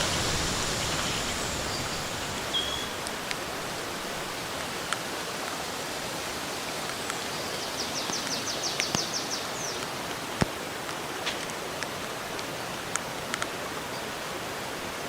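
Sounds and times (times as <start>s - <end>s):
steady rain: 0.0s - 15.0s
bird trilling: 1.7s - 3.0s.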